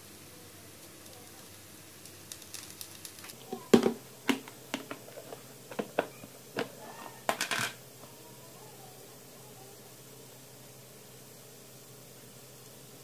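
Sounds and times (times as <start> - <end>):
faint steady hum: 0.0 - 13.0
objects clicking and knocking: 0.8 - 7.8.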